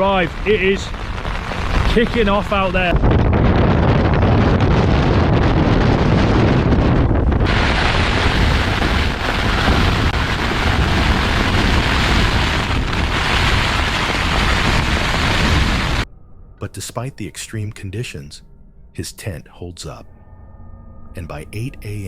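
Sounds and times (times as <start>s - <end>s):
heavy rain battering a tent: 0.0s - 2.9s, 7.5s - 16.0s
wind buffeting microphone: 0.0s - 16.1s
gale-force wind: 0.0s - 16.2s.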